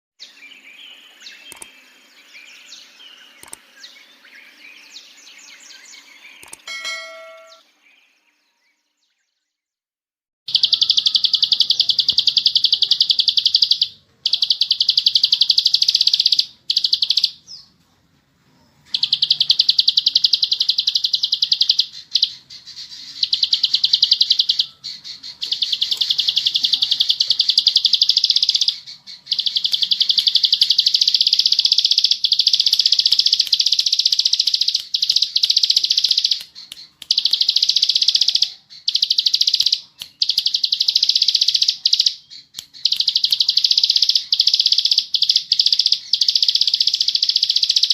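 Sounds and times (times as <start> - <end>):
bird chirps: 0.2 - 9.6, 10.5 - 17.8, 18.5 - 47.9
ringing tones: 6.6 - 7.7.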